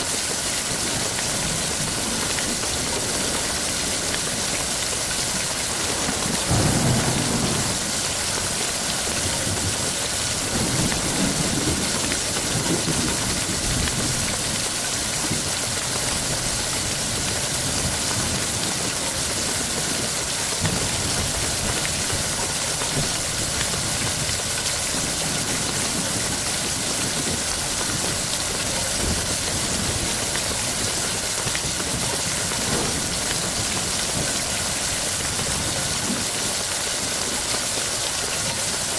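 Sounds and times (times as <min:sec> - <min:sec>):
heavy rain falling: 0:00.8 - 0:38.9
low thunder rumbling: 0:05.6 - 0:09.0.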